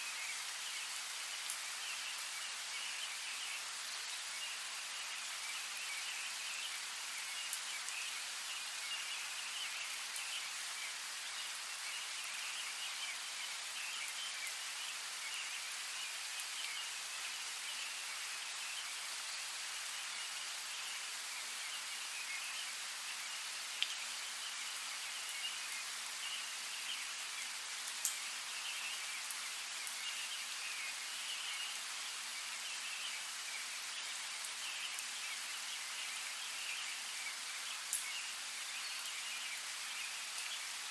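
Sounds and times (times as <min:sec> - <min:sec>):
steady rain hiss: 0:00.0 - 0:40.9
raindrop ticks: 0:23.8 - 0:24.0, 0:28.0 - 0:28.2.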